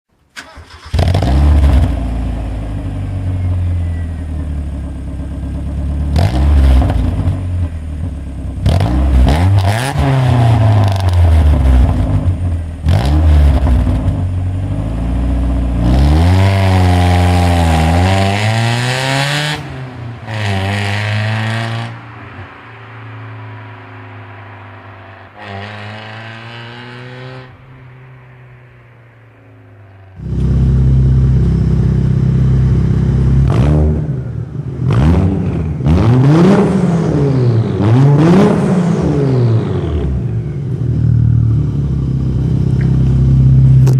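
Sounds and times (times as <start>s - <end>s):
car engine revving: 0.4s - 43.9s
car engine idling: 1.6s - 8.6s, 27.6s - 33.5s, 40.1s - 43.9s.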